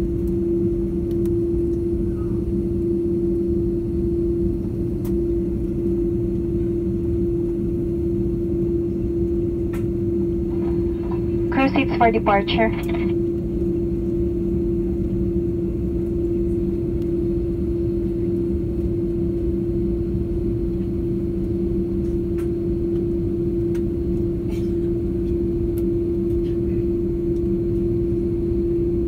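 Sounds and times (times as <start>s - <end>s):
cabin air hum: 10.0s - 13.3s
jet engines droning: 10.0s - 13.7s.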